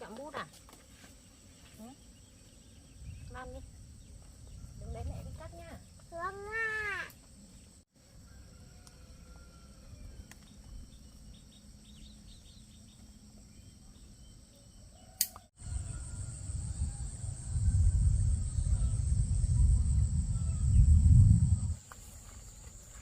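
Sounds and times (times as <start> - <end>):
high-pitched insect drone: 15.6 - 23.0
low rumble: 15.8 - 21.8.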